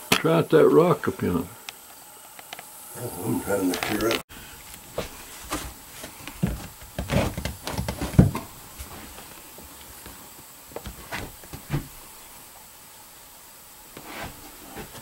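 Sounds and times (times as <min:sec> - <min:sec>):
rustling: 0:03.7 - 0:12.2.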